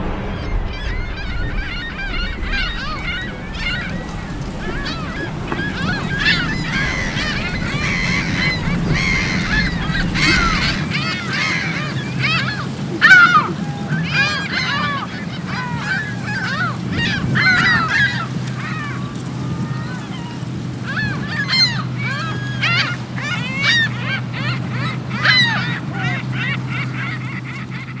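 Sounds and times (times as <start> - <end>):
steady low rumble: 0.0 - 12.0
seagulls crying: 0.0 - 28.0.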